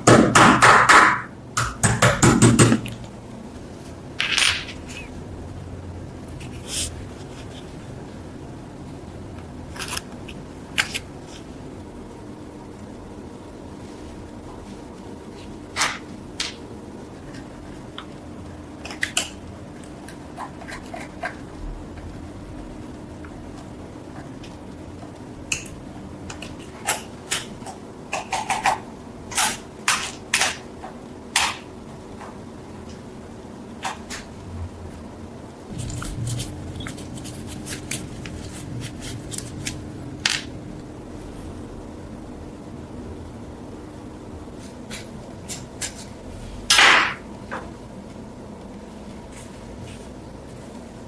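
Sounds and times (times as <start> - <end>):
steady low hum: 0.0 - 29.9, 30.6 - 51.0
low hum: 34.4 - 44.6.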